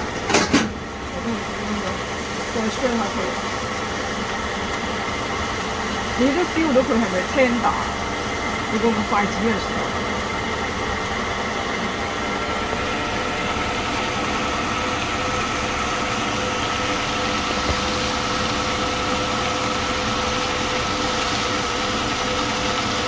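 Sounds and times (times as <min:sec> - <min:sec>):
range hood exhaust fan humming: 0:00.0 - 0:23.0.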